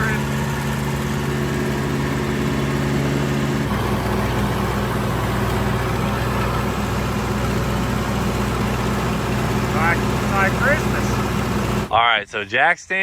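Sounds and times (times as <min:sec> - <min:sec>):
tractor engine running: 0:00.0 - 0:12.5.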